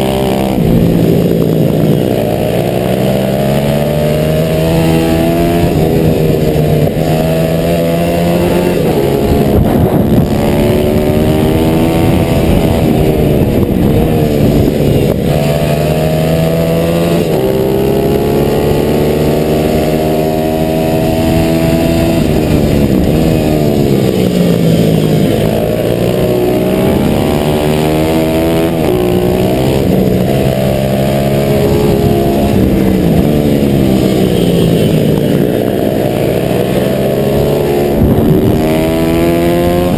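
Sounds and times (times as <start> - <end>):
motorbike engine accelerating: 0.0 - 39.9
wind rushing over microphone: 0.0 - 39.9.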